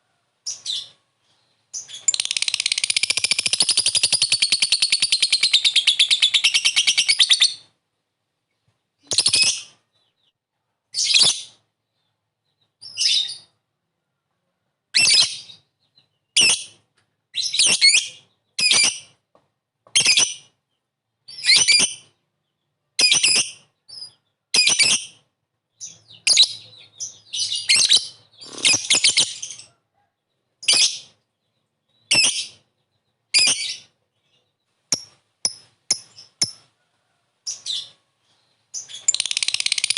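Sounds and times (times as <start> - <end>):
lovebird chattering trill: 1.8 - 7.6, 38.9 - 39.9
sharp high-pitched bird calls: 1.8 - 7.7, 9.0 - 9.8, 21.3 - 22.2, 23.0 - 29.7, 33.3 - 34.0, 34.9 - 36.7, 38.8 - 39.9.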